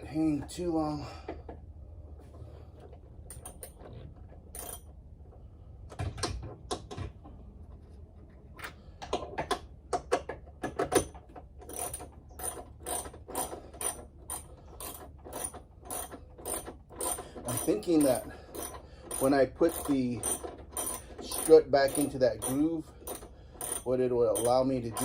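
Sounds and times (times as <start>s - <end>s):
socket ratchet clicking: 18.5s - 23.8s.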